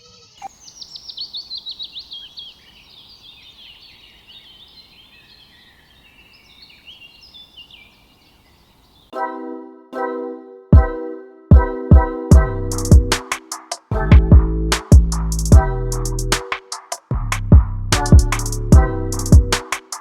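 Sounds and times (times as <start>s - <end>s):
small birds chirping: 0.0s - 9.2s
music chord: 9.2s - 13.3s.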